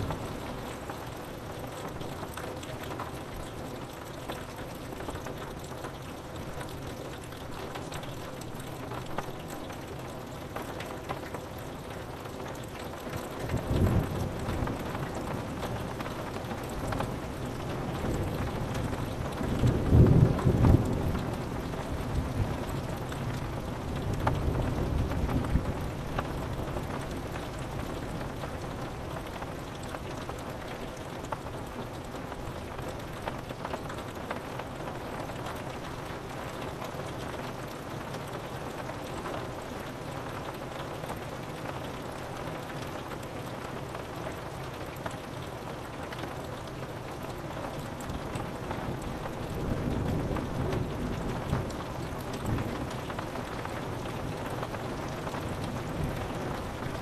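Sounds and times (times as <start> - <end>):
rain on a window: 0.0 - 57.0.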